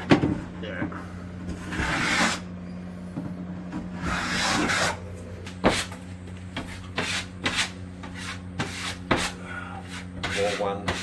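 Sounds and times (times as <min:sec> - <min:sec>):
steady low hum: 0:00.0 - 0:11.0
tool scraping plaster: 0:01.5 - 0:02.5, 0:03.8 - 0:11.0.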